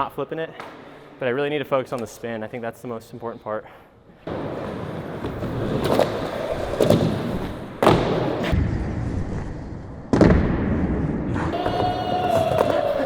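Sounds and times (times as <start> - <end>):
skateboard wheels rolling: 4.3 - 10.3, 11.0 - 13.0.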